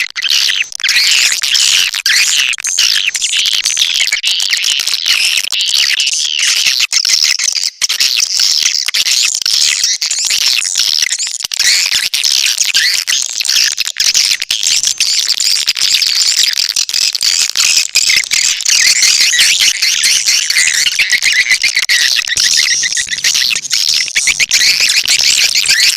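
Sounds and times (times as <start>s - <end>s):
swiftlets twittering: 14.2s - 25.9s.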